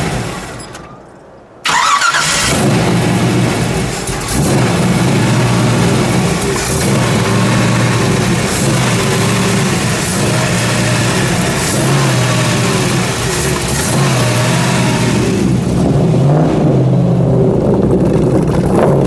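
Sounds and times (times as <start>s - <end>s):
engine revving and idling: 1.7s - 19.0s.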